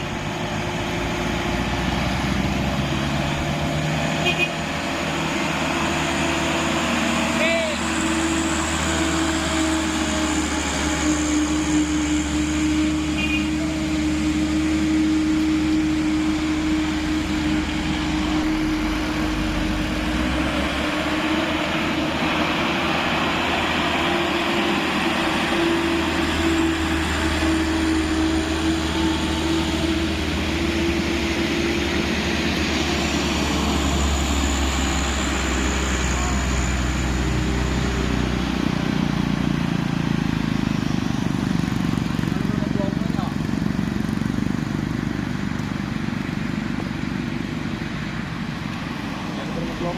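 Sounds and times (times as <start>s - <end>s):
diesel truck engine roaring: 0.0s - 49.9s
steady droning tone: 2.8s - 40.5s.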